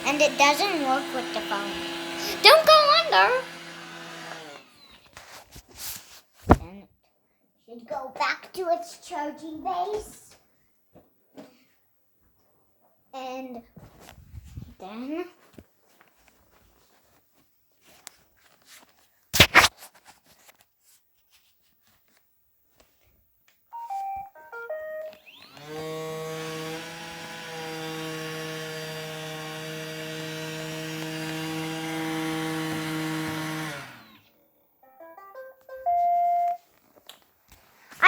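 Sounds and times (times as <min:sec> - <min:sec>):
robot vacuum motors humming: 0:00.0 - 0:04.9, 0:25.1 - 0:34.3.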